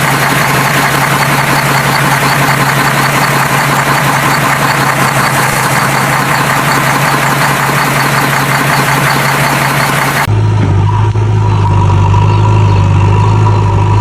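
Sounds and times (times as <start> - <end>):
engine running with hiss: 0.0 - 14.0.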